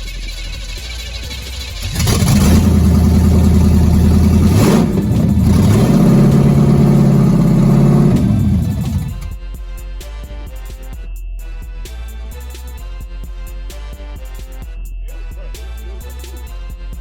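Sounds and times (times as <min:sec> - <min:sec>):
car engine revving: 0:00.4 - 0:09.4.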